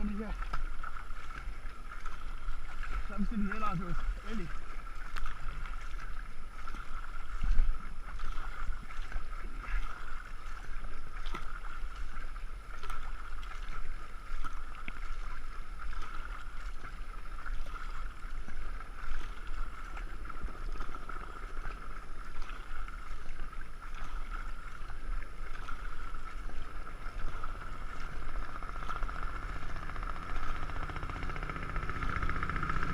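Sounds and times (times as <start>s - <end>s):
light knocks and splashes: 0.0s - 32.9s
water rushing: 0.0s - 32.9s.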